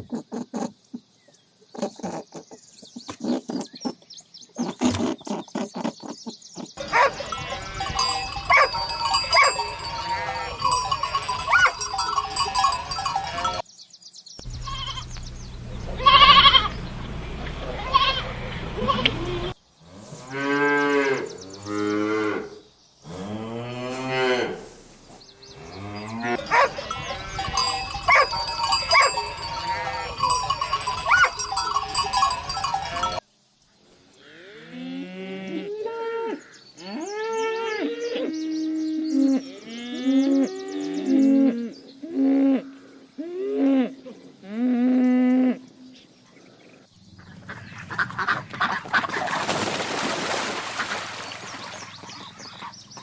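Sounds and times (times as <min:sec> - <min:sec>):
bell-like ringing: 0:06.8 - 0:13.6, 0:26.0 - 0:33.2
cattle mooing: 0:06.8 - 0:13.6, 0:25.6 - 0:33.2.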